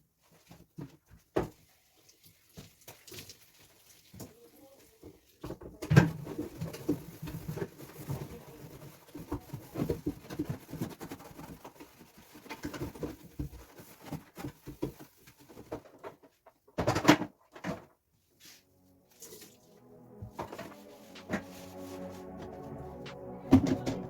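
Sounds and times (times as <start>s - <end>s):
plastic containers washed in sink: 0.2s - 17.7s.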